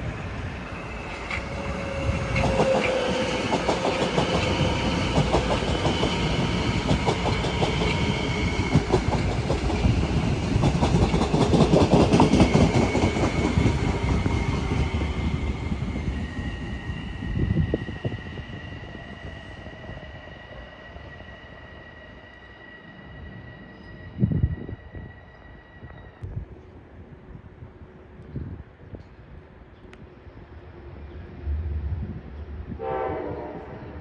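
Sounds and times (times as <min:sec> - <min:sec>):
train rumble: 0:00.0 - 0:21.2
train wheels clicking over rail joints: 0:02.3 - 0:15.0.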